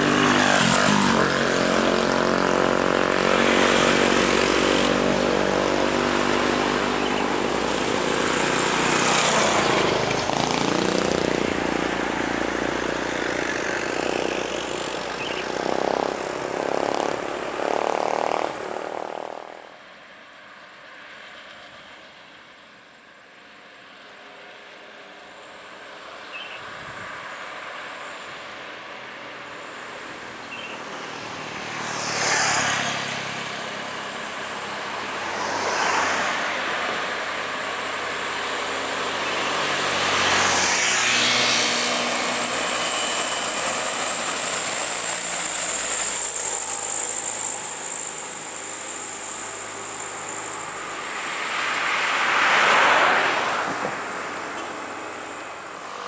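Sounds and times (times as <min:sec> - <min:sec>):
trucks and vehicles passing: 0:00.0 - 0:56.0.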